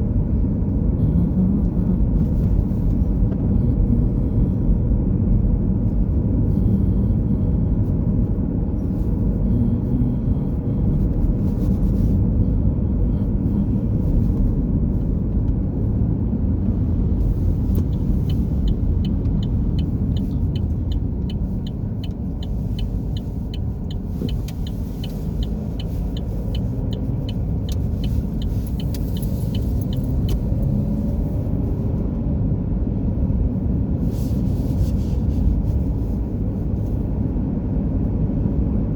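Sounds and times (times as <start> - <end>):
car road and engine rumble: 0.0 - 38.9
light regular ticking: 17.0 - 30.7.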